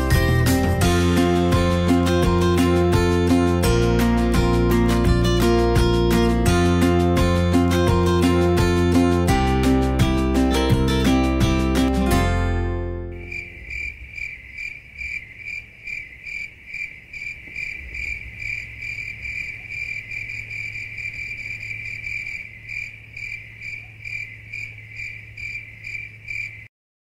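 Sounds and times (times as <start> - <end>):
crickets chirping: 13.1 - 26.7.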